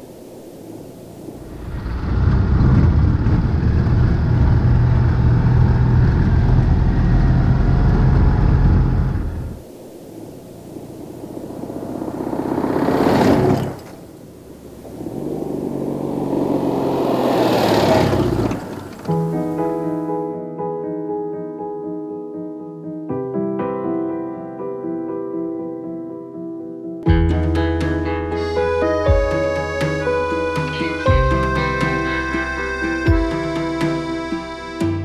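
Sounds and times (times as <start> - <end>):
car engine running and revving: 1.4 - 9.6, 11.0 - 14.0, 14.8 - 19.1.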